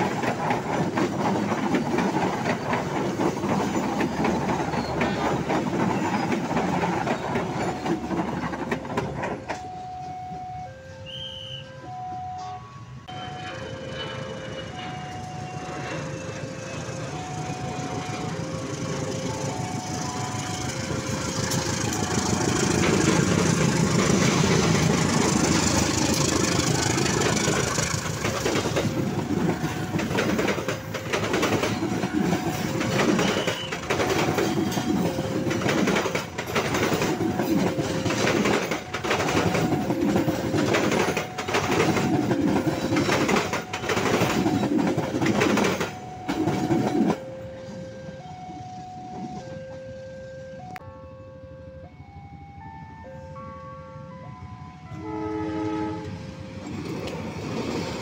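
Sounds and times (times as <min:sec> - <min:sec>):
train wheels clattering over rail joints: 0:00.0 - 0:09.7, 0:20.9 - 0:47.2
locomotive passing: 0:00.0 - 0:58.0
two-tone level-crossing bell: 0:11.6 - 0:23.6, 0:28.6 - 0:55.1.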